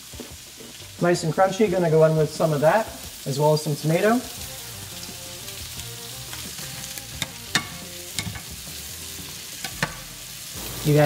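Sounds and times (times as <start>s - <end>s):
fish sizzling in pan: 0.0s - 11.0s
utensil clicking against pan: 7.1s - 8.5s.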